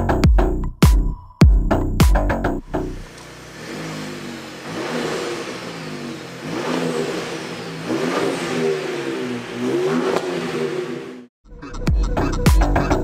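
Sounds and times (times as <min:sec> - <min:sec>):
car engine revving: 0:02.6 - 0:11.3.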